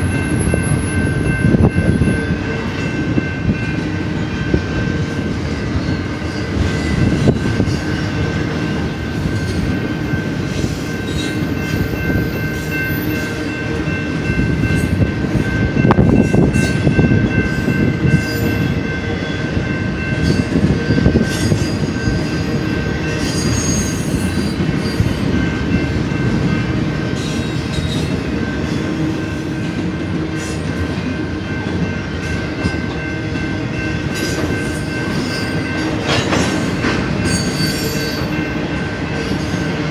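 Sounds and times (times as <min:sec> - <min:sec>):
freight train wheels rumbling on rail: 0:00.0 - 0:39.9
high-pitched wheel squeal: 0:37.3 - 0:38.3.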